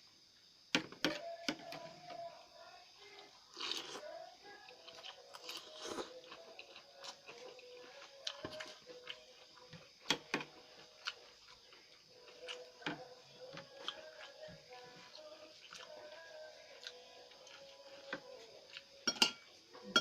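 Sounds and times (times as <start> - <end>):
chewing noodles: 3.1 - 19.0.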